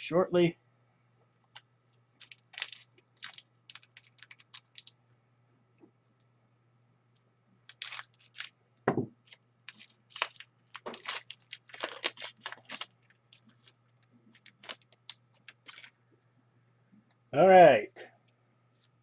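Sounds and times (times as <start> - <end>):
wrapper crackling rustles: 2.2 - 4.9, 7.7 - 8.6, 9.2 - 16.0
dull thump: 8.9 - 9.2.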